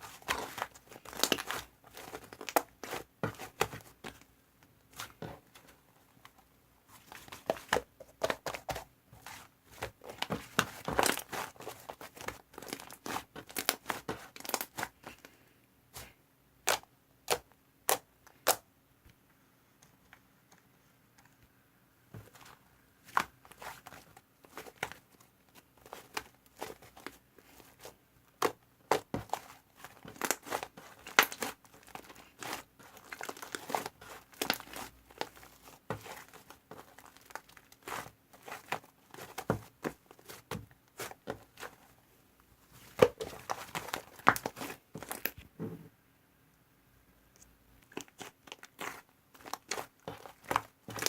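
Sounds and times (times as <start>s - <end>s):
slime crackling and popping: 28.4s - 41.7s, 42.9s - 45.3s, 47.8s - 51.0s.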